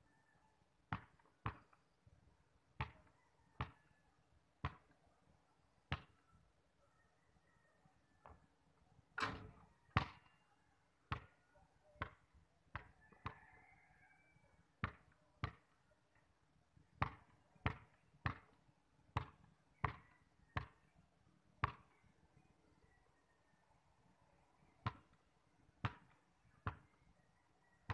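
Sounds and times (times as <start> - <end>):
basketball bouncing on concrete: 14.8 - 15.6, 17.0 - 18.6, 19.2 - 20.8.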